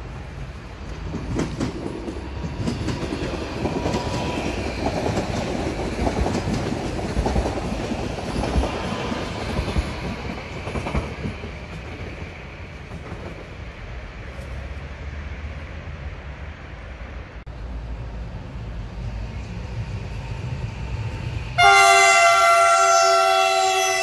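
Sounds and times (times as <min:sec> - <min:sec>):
train rumble: 0:00.0 - 0:24.0
train wheels clicking over joints: 0:00.8 - 0:14.6.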